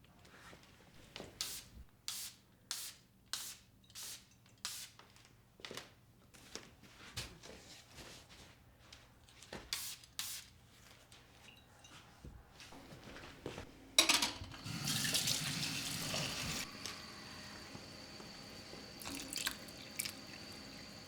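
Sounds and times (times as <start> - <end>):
hissing cleaning strokes: 14.7 - 21.0.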